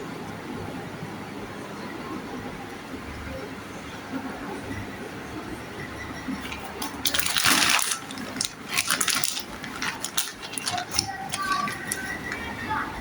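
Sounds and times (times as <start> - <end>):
packaging crinkling: 6.4 - 12.6
plastic toys clicking: 6.4 - 12.6.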